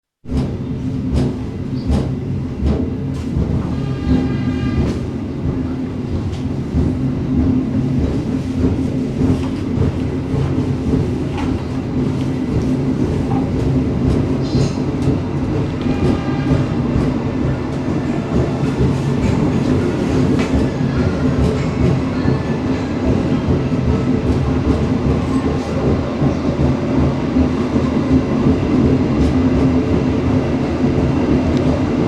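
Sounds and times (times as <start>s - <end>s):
train rumbling on track: 0.2s - 32.0s.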